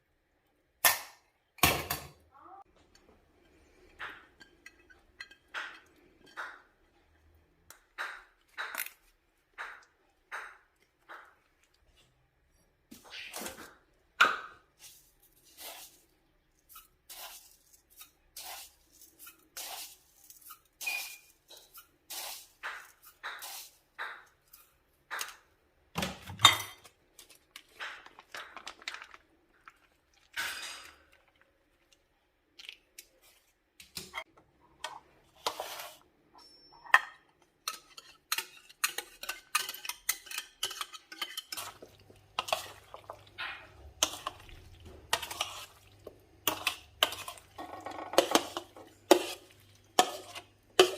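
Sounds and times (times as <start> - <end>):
dishes and utensils clinking: 3.4 - 7.2, 20.4 - 21.9, 30.3 - 31.2, 36.4 - 50.9.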